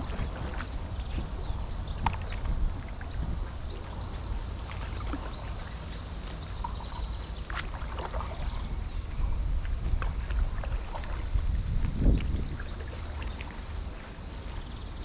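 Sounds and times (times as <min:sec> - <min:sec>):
small birds chirping: 0:00.0 - 0:09.4, 0:12.4 - 0:15.0
paddle splashing in water: 0:00.0 - 0:15.0
wind rumble on microphone: 0:00.0 - 0:15.0.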